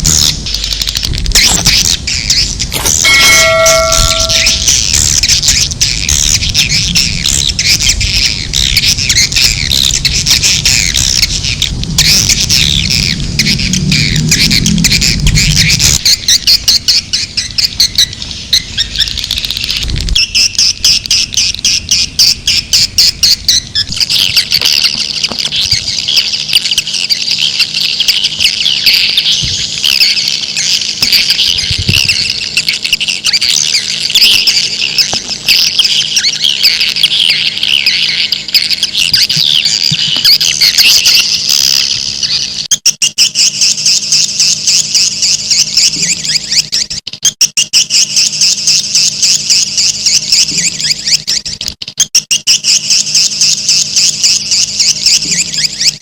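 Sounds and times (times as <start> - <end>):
swiftlets twittering: 2.7 - 5.6.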